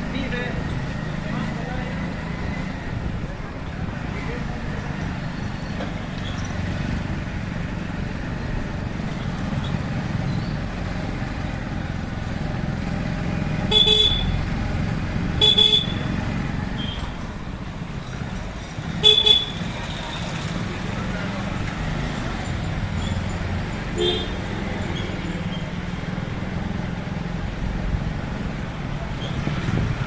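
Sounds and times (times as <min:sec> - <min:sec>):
traffic and road rumble: 0:00.0 - 0:30.0
vehicle horn tooting: 0:13.7 - 0:14.4, 0:15.4 - 0:16.1, 0:19.0 - 0:19.7, 0:24.0 - 0:24.4.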